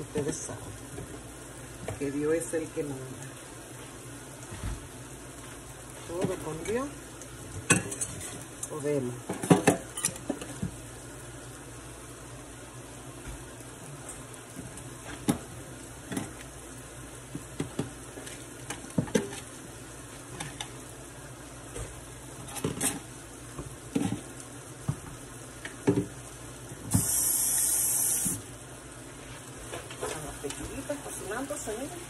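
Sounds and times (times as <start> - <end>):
chicken frying in oil: 0.0 - 32.0
loud hiss: 26.8 - 28.6.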